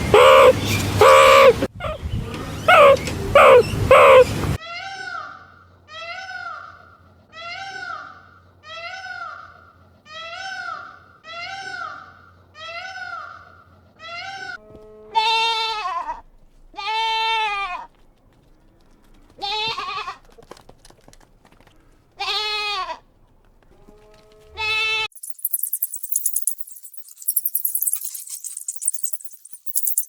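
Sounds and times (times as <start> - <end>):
short high-pitched goat calls: 2.7 - 18.0, 19.3 - 20.4, 22.2 - 23.1, 23.9 - 25.1
goat bleating: 10.1 - 20.7, 22.0 - 25.1.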